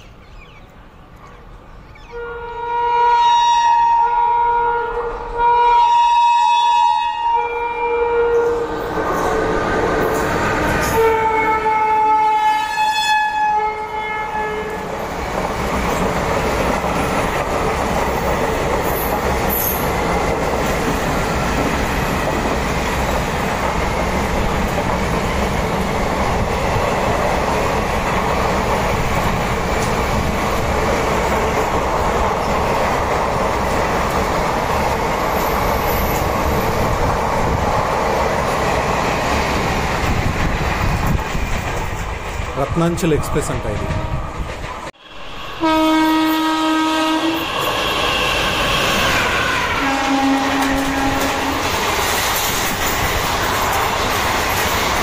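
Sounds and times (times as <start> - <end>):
locomotive horn: 2.1 - 8.8, 10.8 - 14.9, 45.0 - 48.5, 49.6 - 51.8
train rumble and wheel clatter: 6.2 - 55.0.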